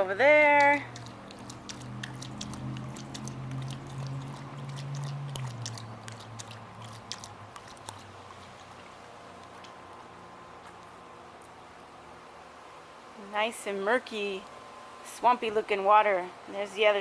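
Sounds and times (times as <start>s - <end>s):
steady low hum: 0.0s - 17.0s
dog lapping water: 0.5s - 9.8s.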